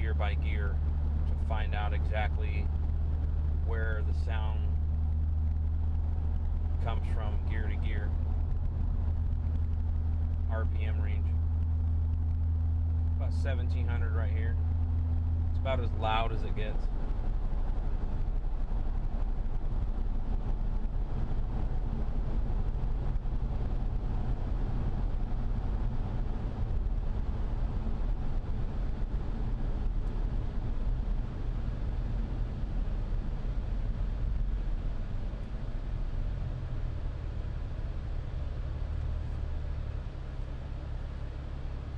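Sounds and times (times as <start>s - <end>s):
low exhaust drone in car cabin: 0.0s - 41.9s.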